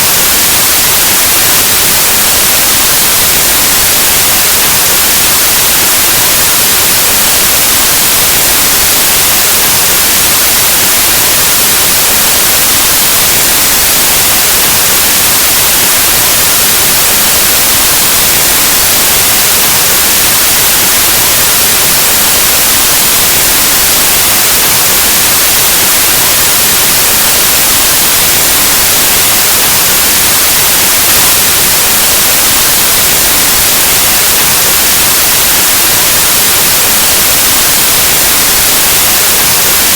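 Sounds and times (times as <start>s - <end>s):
loud white noise hiss: 0.0s - 39.9s.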